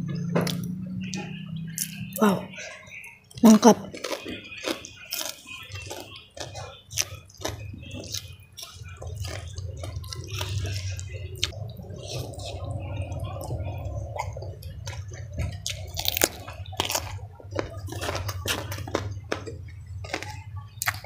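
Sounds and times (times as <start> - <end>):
wet chewing and lip-smacking: 0.0 - 21.0.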